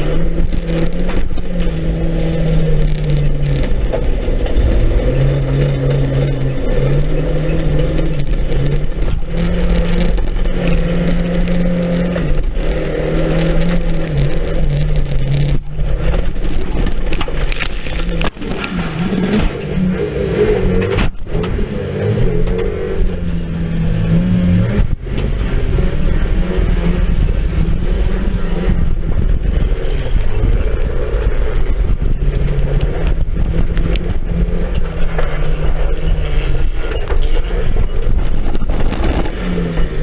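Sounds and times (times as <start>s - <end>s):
knocks and rattles: 0.0s - 20.0s, 28.8s - 40.0s
race car engine revving: 0.0s - 40.0s.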